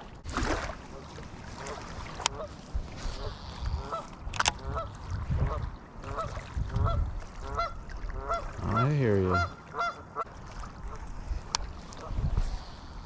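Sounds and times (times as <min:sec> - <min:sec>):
geese honking: 0:06.1 - 0:10.3.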